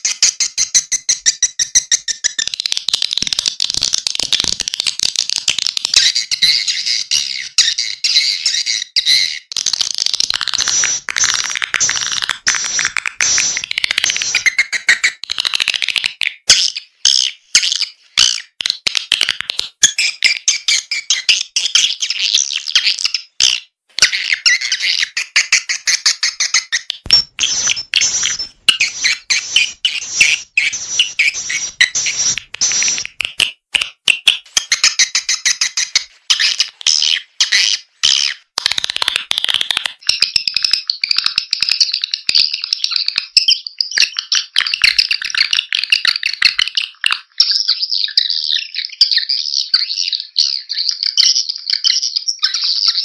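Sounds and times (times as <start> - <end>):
swiftlets twittering: 10.4 - 14.8, 27.0 - 33.3.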